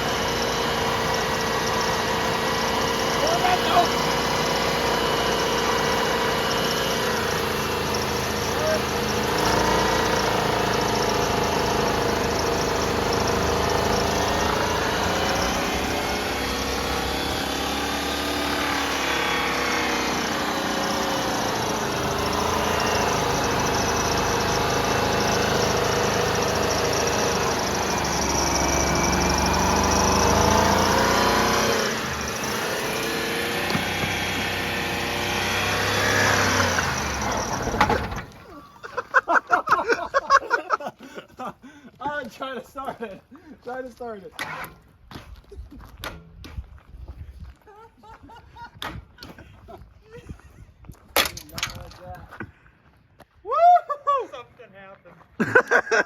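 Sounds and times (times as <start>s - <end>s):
pickup engine revs surging: 0.0s - 38.6s.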